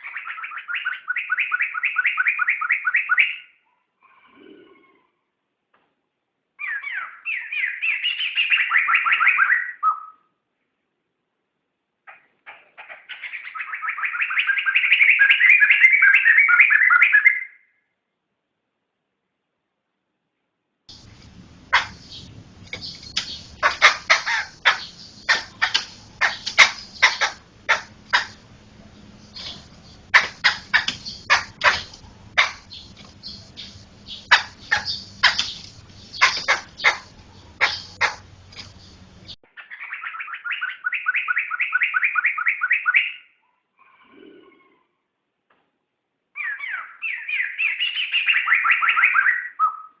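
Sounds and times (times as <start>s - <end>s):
bird singing repeated notes: 0.0s - 5.1s, 6.6s - 10.3s, 12.1s - 17.8s, 20.9s - 44.9s, 46.4s - 50.0s
faint steady hum: 17.8s - 39.4s.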